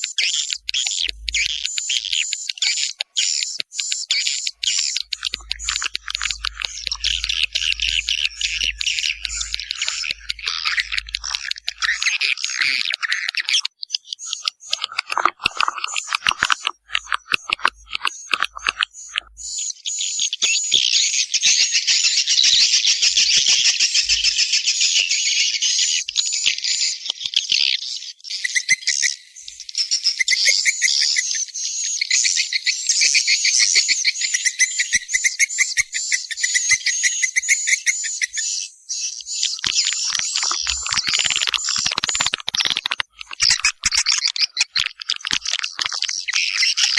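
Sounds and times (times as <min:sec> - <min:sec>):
recorded swiftlet chirps: 0:00.0 - 0:20.7, 0:33.2 - 0:46.9.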